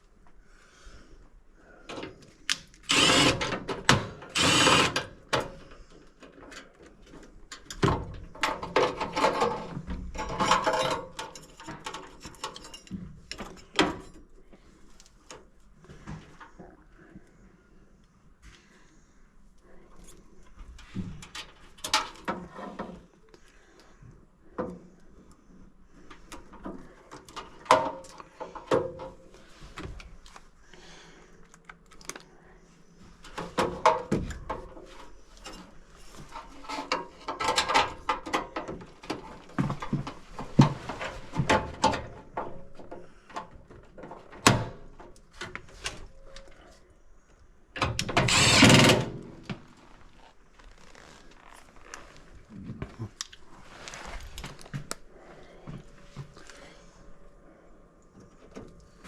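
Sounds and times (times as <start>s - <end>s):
rasping burst: 2.9s - 3.6s, 4.3s - 5.0s
tools and metal parts rattling: 8.4s - 14.2s.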